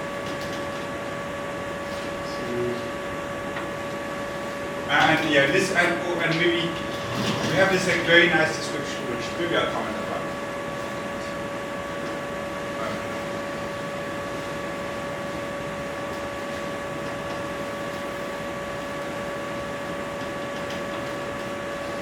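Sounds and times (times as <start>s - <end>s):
constant tonal hum: 0.0s - 22.0s.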